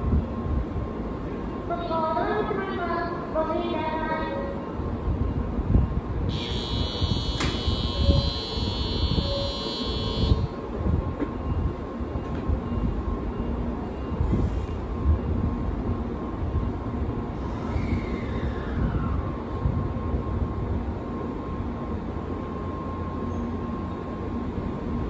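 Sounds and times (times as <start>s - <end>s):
platform departure signal ringing: 6.3s - 10.6s.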